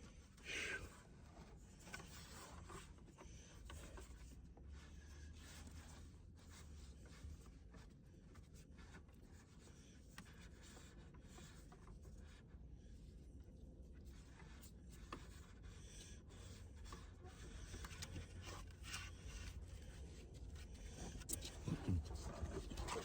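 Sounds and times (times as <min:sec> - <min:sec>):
rubbing and scratching: 0:14.4 - 0:23.0.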